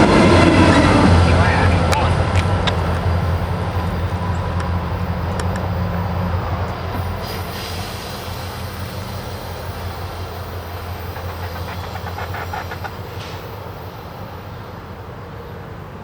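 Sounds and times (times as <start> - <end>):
diesel locomotive engine drone: 0.0 - 16.0
train wheels rolling: 0.0 - 16.0
wheels clicking over rail joints: 1.8 - 14.6.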